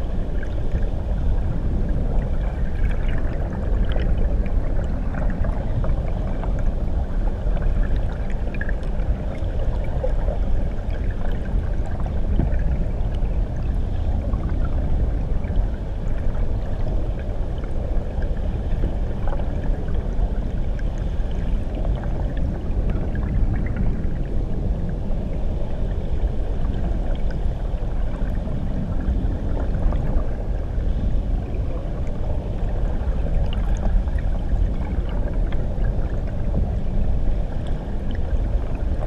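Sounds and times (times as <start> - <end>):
underwater waterfall rumble: 0.0 - 39.0
faint bubbling ticks: 1.6 - 25.3.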